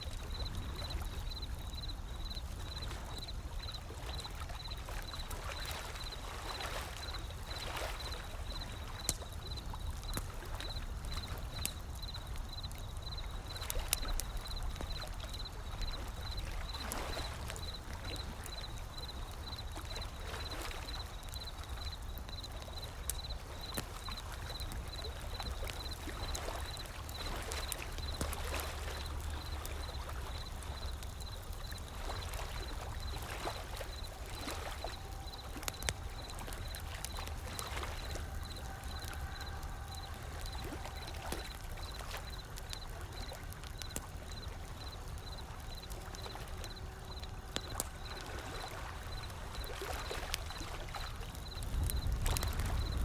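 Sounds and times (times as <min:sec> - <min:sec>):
ocean waves: 0:00.0 - 0:53.0
wood fire crackling and popping: 0:00.0 - 0:53.0.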